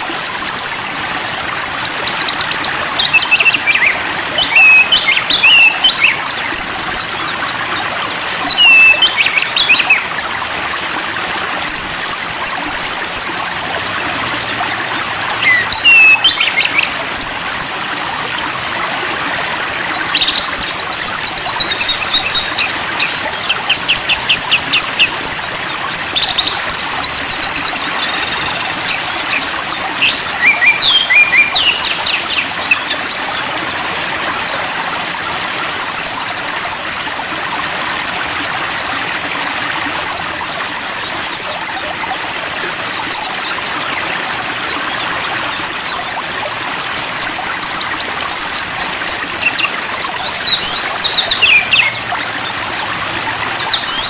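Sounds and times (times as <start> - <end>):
running water: 0.0 - 54.0
songbird calls and trills: 1.8 - 10.1, 14.4 - 17.8, 20.0 - 34.9, 44.4 - 54.0.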